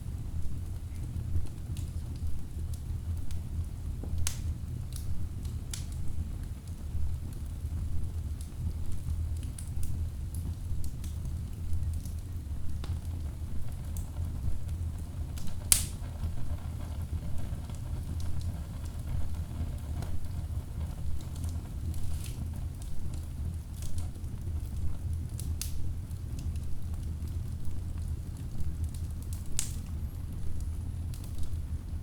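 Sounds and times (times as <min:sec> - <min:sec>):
wood fire burning: 0:00.0 - 0:32.0
loud sharp pop of fire: 0:15.3 - 0:20.4.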